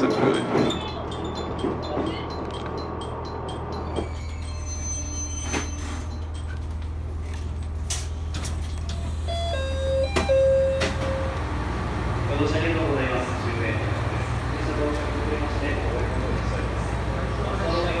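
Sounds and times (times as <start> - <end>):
train interior low hum: 0.0 - 18.0
train running noise: 0.0 - 18.0
high brake squeal: 3.9 - 6.3.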